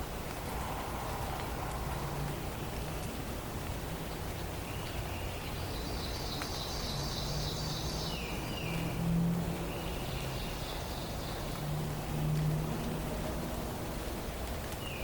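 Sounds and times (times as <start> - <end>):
songbirds calling and trilling: 4.1 - 11.6, 14.6 - 15.0.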